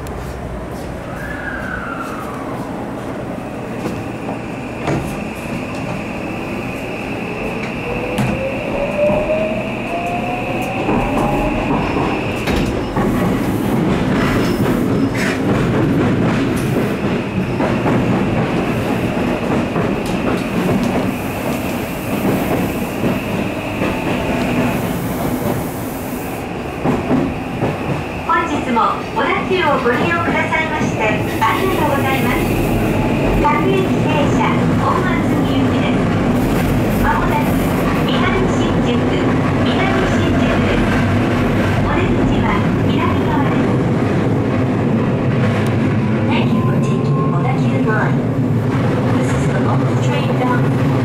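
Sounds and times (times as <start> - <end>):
train clicks: 10.6 - 25.7.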